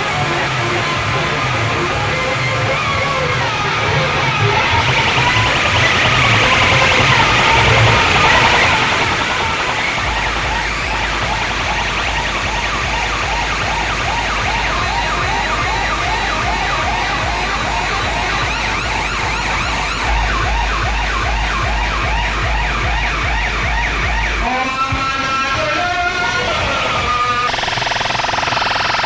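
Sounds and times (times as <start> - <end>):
siren-like whoops: 2.5 - 25.5
deep bass: 9.1 - 24.5.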